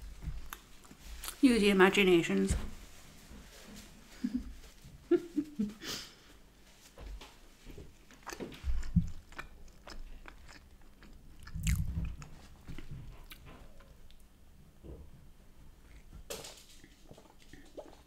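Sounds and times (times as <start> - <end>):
person chewing food: 0.3 - 1.4, 7.6 - 14.3.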